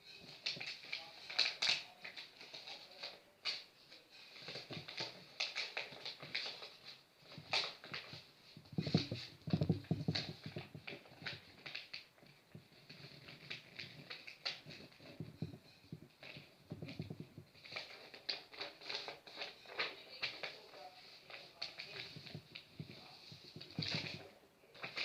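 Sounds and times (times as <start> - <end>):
paper crinkling and creasing: 0.0 - 25.0
paper knocking on table: 7.3 - 19.1.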